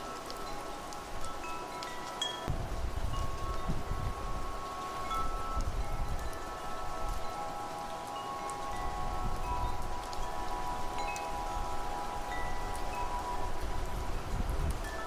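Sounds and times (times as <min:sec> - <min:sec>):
light rain hiss: 0:00.0 - 0:15.0
wind chimes ringing: 0:00.0 - 0:15.0
gusty wind rumble: 0:02.5 - 0:07.3, 0:08.7 - 0:15.0.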